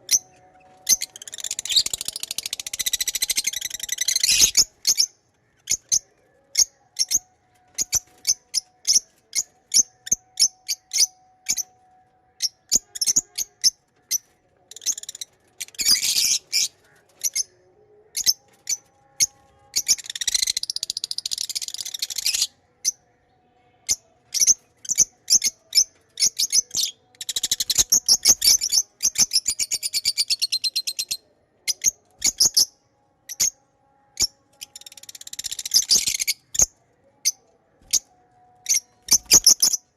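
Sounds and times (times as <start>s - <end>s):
birds rapid chattering: 0.1s - 11.6s, 12.7s - 22.5s, 23.8s - 32.7s, 34.6s - 38.0s, 38.7s - 39.8s
lovebirds chirping: 34.2s - 39.8s.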